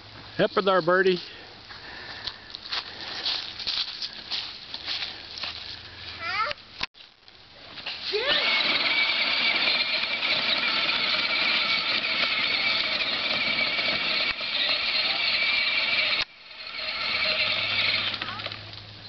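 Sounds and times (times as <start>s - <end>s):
electric motor and gears whining: 8.0s - 19.0s.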